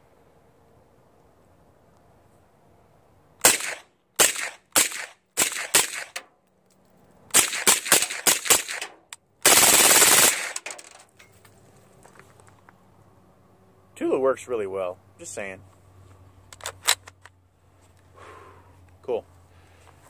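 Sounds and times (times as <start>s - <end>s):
automatic gunfire burst: 3.4s - 6.2s, 7.3s - 10.8s
suppressed gunshots: 3.4s - 6.3s, 7.3s - 10.9s.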